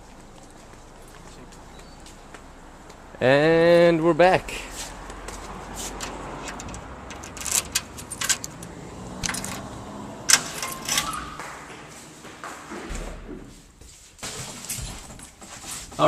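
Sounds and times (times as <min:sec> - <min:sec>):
sharp clicks and knocks: 0:06.0 - 0:09.7.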